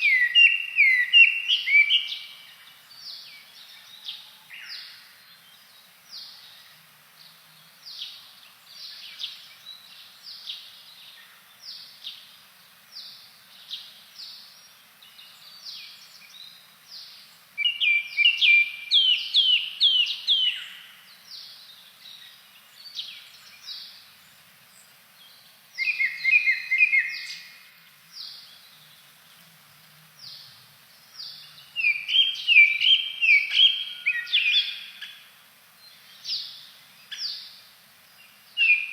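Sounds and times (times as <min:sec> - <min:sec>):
bird singing whistled notes: 0:00.0 - 0:06.7, 0:13.0 - 0:29.0, 0:30.2 - 0:35.2, 0:38.2 - 0:38.9.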